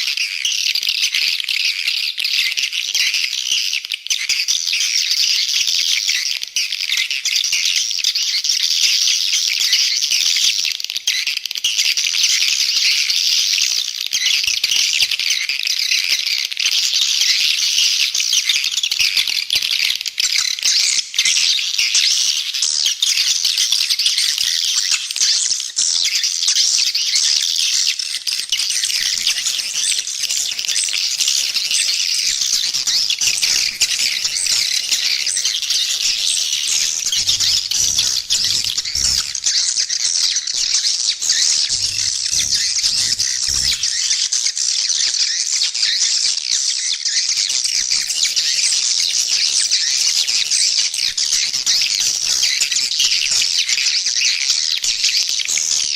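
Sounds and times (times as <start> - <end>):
swiftlets chirping and twittering: 14.2 - 46.4, 47.1 - 55.9.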